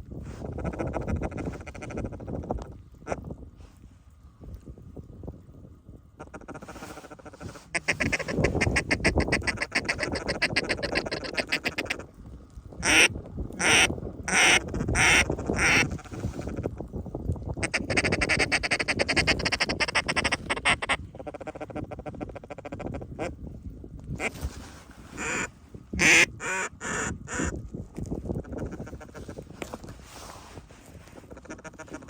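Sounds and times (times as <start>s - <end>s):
duck call chatter and quacks: 0.5s - 2.4s, 6.2s - 12.1s, 12.8s - 16.7s, 17.6s - 23.3s, 25.2s - 27.5s, 28.4s - 29.3s, 31.2s - 32.0s.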